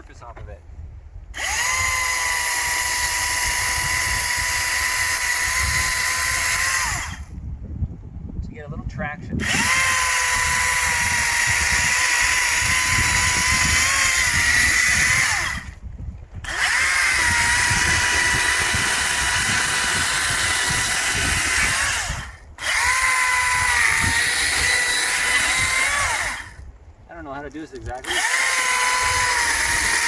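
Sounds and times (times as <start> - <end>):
electric chainsaw cutting wood: 1.4 - 7.4, 9.4 - 15.8, 16.4 - 26.6, 27.6 - 30.0.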